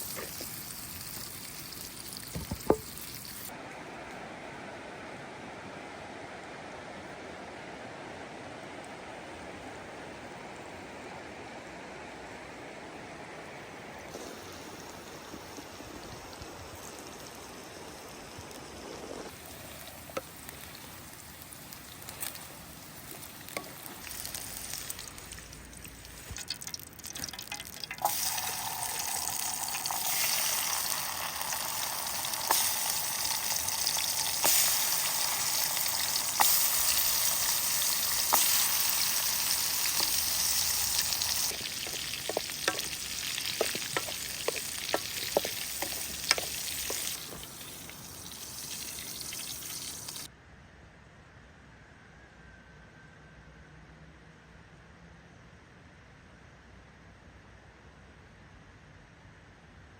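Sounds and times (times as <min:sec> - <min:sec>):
food sizzling in a pan: 0:00.0 - 0:03.5, 0:14.1 - 0:50.3
fat popping: 0:02.2 - 0:03.2, 0:32.3 - 0:50.2.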